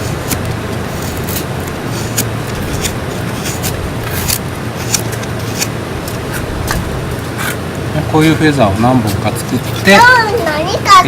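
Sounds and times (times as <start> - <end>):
knife scraping wood: 0.0 - 7.6, 9.0 - 10.1
steady low rumble: 0.0 - 10.8.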